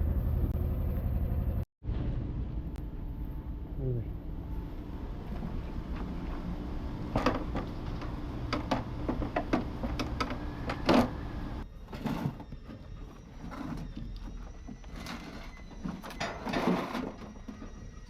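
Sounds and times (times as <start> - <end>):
steady low hum: 0.0 - 18.0
metal parts knocking and clattering: 13.4 - 17.7.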